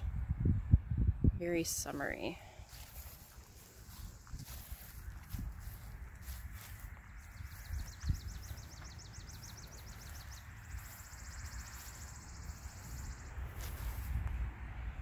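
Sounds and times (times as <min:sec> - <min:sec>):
birds trilling: 0:03.7 - 0:13.4.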